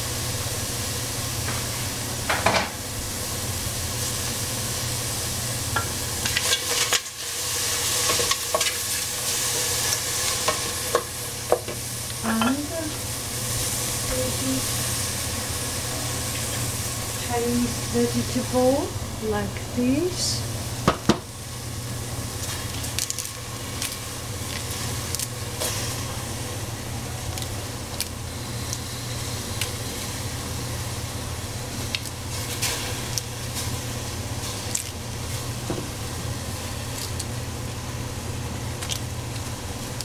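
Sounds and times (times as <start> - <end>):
constant low hum: 0.0 - 40.0
vegetables sizzling in a pan: 0.0 - 40.0
crackles and pops: 22.3 - 26.2, 27.3 - 30.1, 31.7 - 35.6, 36.6 - 37.8, 38.6 - 40.0.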